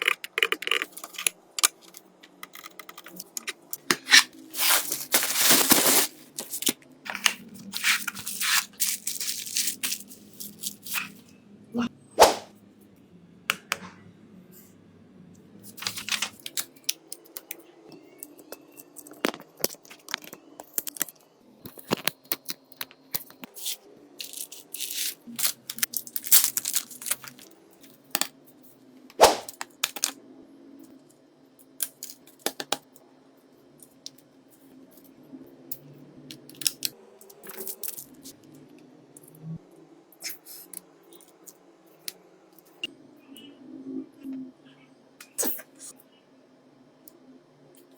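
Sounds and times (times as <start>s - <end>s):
small tools clicking and scraping: 0.0s - 11.2s
faint steady hum: 0.0s - 47.9s.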